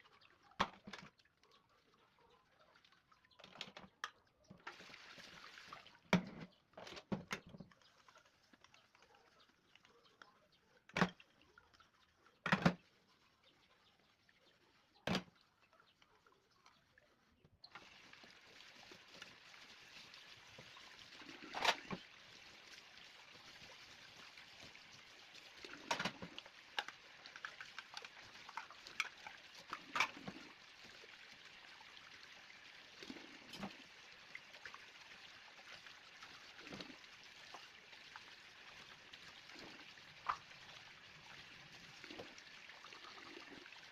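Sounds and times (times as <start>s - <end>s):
water running: 4.5s - 10.0s, 17.6s - 43.9s.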